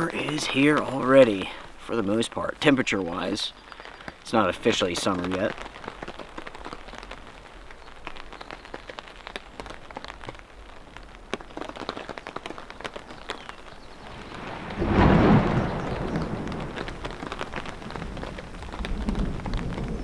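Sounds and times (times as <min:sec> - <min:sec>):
rain pattering: 0:00.0 - 0:20.0
thunder rumbling: 0:13.9 - 0:20.0.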